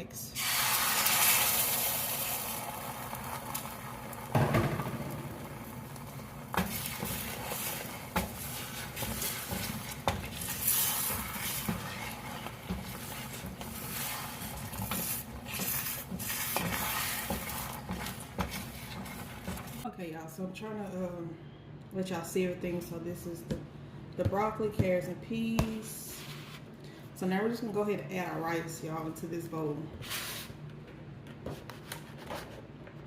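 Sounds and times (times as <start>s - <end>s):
eggs sizzling in a pan: 0.4s - 4.4s, 5.3s - 19.8s
utensil scraping a pan: 6.5s - 19.8s.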